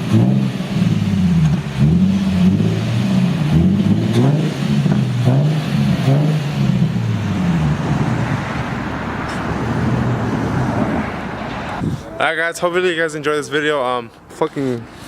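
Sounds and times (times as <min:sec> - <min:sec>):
car engine revving: 0:00.0 - 0:12.0
steady rushing noise: 0:06.4 - 0:12.3.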